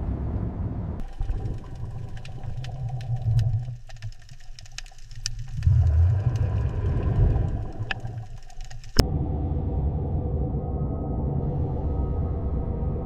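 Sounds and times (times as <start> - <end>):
low mechanical rumble: 0.0 - 3.9, 5.6 - 13.0
sharp irregular clicks: 1.0 - 9.0.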